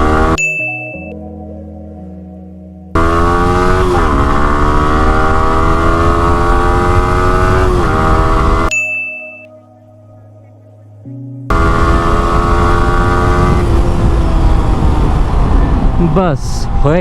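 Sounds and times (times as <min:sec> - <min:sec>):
motorcycle engine accelerating: 0:00.0 - 0:01.1, 0:02.9 - 0:08.7, 0:11.4 - 0:16.8
short ding: 0:00.4 - 0:01.2, 0:08.7 - 0:09.5.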